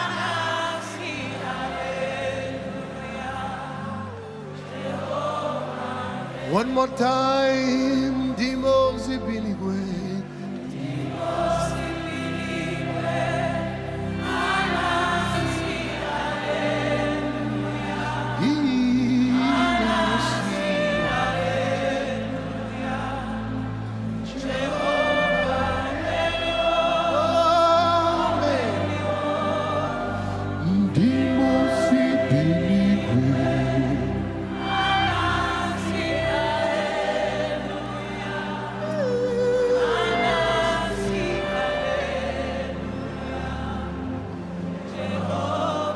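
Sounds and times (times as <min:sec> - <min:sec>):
choir and congregation singing: 0:00.0 - 0:45.9
sustained instrumental chords: 0:00.0 - 0:45.9
lead voice sliding downward: 0:24.2 - 0:43.0.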